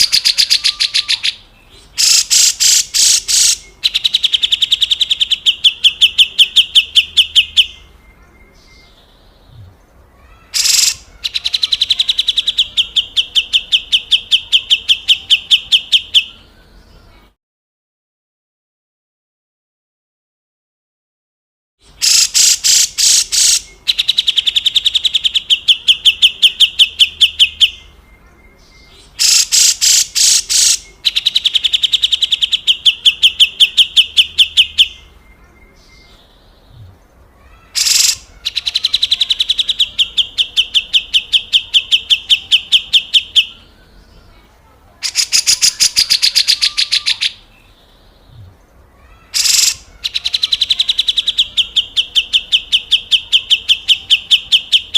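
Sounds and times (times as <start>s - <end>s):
bulbul harsh rattling calls: 0.0s - 7.9s, 10.2s - 16.3s, 21.9s - 28.0s, 29.0s - 35.1s, 37.4s - 43.7s, 45.0s - 47.5s, 49.0s - 54.9s.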